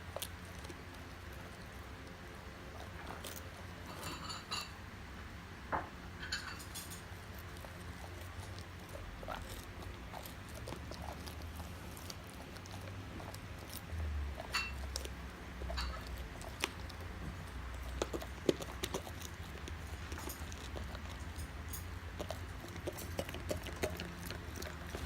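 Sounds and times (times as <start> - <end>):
dog chewing crunchy treat: 0.0 - 4.8, 6.2 - 25.0.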